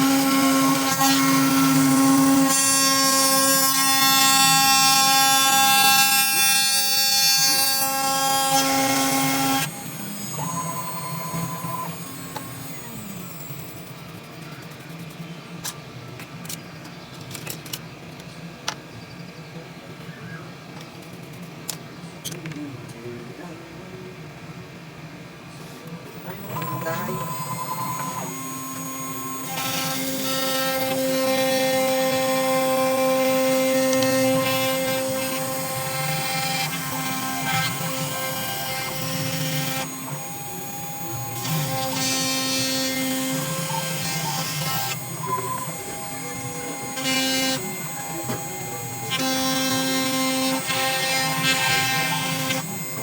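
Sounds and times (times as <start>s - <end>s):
machine motors whining: 0.0s - 18.8s, 25.5s - 53.0s
rushing cutting noise: 26.2s - 53.0s.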